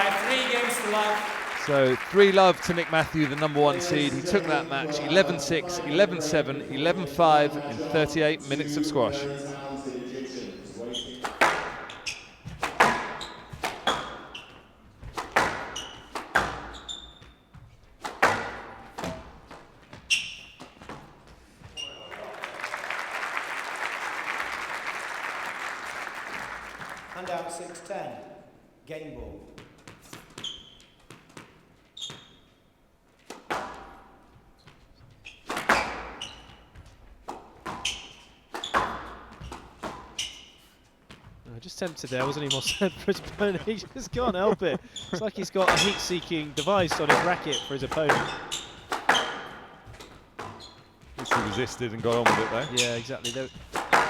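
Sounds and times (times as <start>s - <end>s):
shoes squeaking on wooden floor: 0.2s - 9.6s, 10.4s - 22.2s, 29.6s - 54.0s
squash ball hitting rackets and walls: 11.0s - 21.7s, 33.2s - 41.4s, 45.6s - 54.0s.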